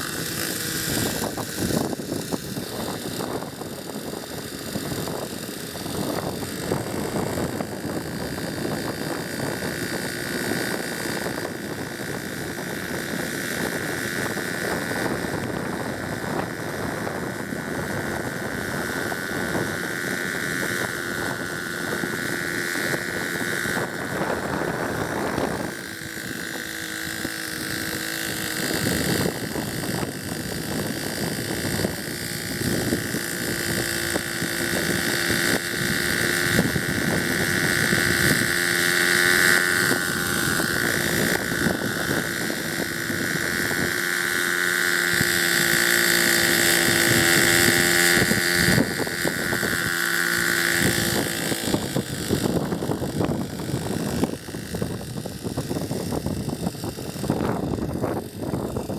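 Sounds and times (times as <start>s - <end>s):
model helicopter engine whine: 0.0s - 58.9s
wind on microphone: 0.0s - 58.9s.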